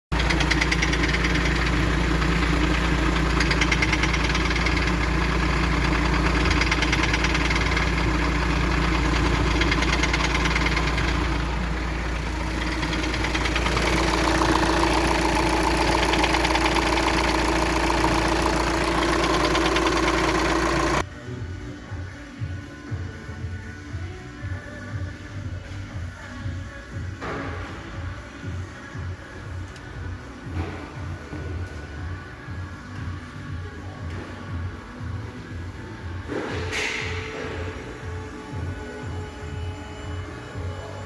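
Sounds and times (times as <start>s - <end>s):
rapid engine knocking: 0.1s - 21.0s
diesel engine running: 0.1s - 21.1s, 30.4s - 41.0s.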